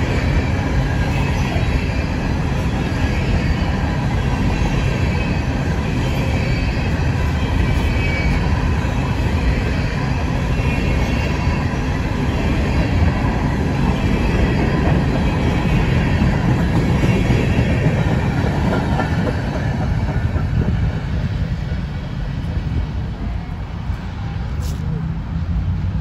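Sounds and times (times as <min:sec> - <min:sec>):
train cars rolling on rails: 0:00.0 - 0:26.0.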